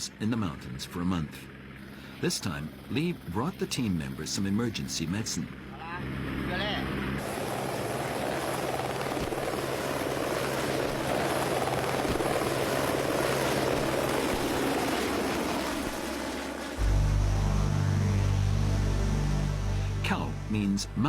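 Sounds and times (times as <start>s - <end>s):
music: 16.8s - 21.0s
vehicle engine running: 16.8s - 21.0s.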